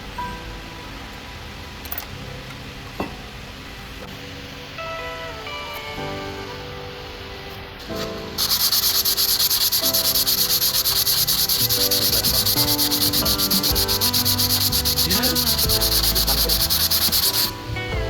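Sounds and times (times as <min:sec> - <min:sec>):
rapid sanding rasp: 0:08.4 - 0:17.6.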